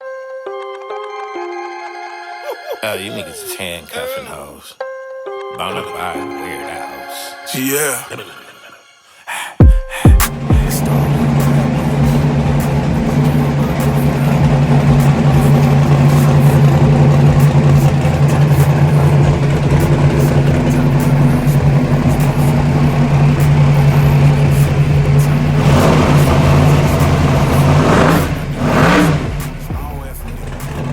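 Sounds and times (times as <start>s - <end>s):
car engine lumpy idle: 10.3s - 30.9s.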